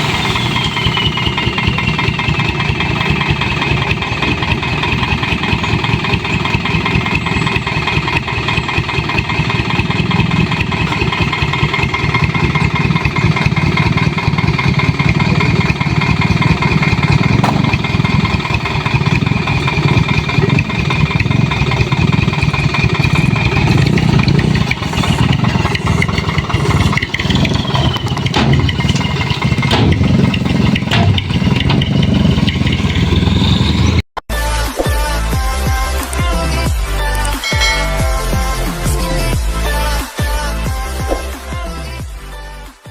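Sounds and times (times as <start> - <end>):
truck engine running: 0.0 - 34.2, 35.1 - 42.3
high whine: 4.9 - 34.0, 37.4 - 39.4
sand unloading: 8.4 - 32.4.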